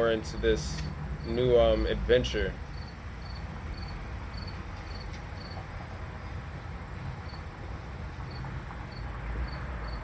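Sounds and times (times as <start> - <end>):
cricket chirping: 2.7 - 5.6, 7.3 - 7.5.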